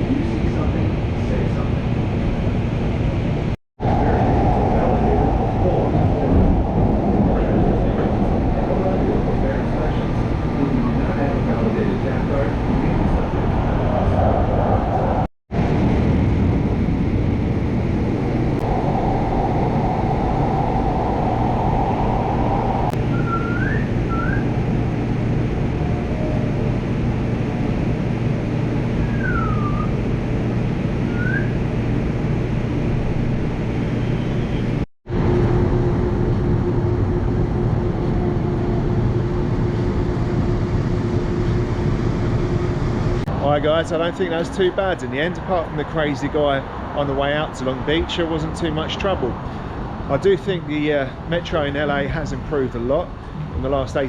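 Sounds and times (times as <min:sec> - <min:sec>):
constant hum: 0:00.0 - 0:54.0
steady whine: 0:00.0 - 0:54.0
train rumbling: 0:00.0 - 0:54.0
short rising squeals: 0:18.6 - 0:24.7, 0:28.8 - 0:30.1, 0:31.0 - 0:31.8.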